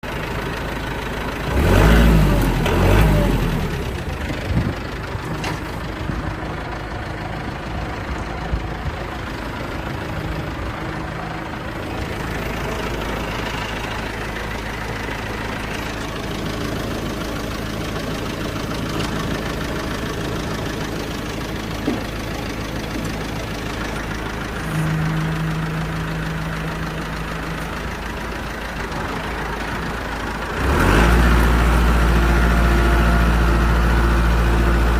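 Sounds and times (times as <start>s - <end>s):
tractor diesel engine running: 0.0s - 34.9s
steady low tone: 3.4s - 30.6s.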